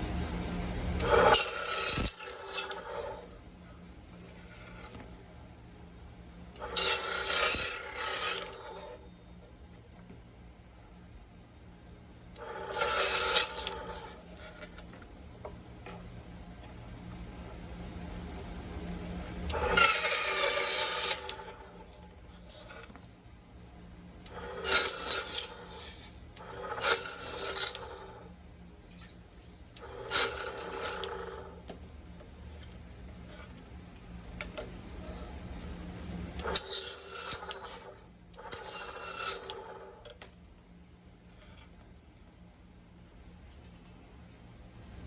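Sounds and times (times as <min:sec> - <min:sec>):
blade rasping through bone: 0:06.6 - 0:08.9.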